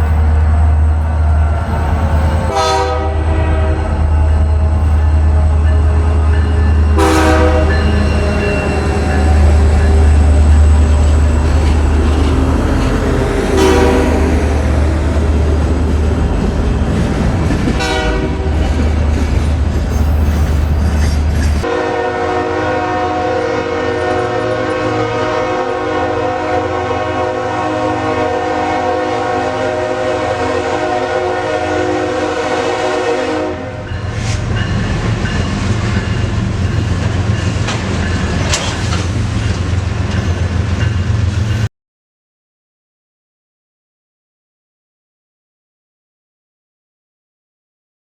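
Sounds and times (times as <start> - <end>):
locomotive engine rumbling: 0.0 - 22.2
locomotive air horn blast: 2.5 - 4.0, 4.7 - 14.7, 17.8 - 18.6, 21.6 - 33.8
train wheels clicking on rail joints: 4.2 - 13.5, 14.6 - 21.7, 33.9 - 41.6.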